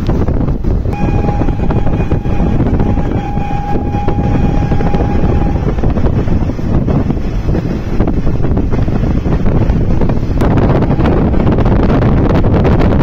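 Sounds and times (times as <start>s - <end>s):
train wheels rumbling on rails: 0.0s - 13.0s
wind on microphone: 0.0s - 13.0s
train horn: 1.0s - 7.0s.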